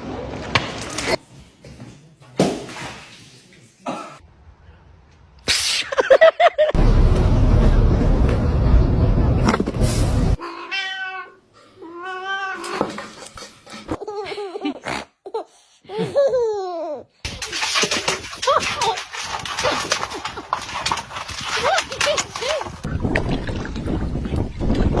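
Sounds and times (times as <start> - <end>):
loud rushing noise: 6.8 - 10.4
cat meowing: 10.4 - 12.8.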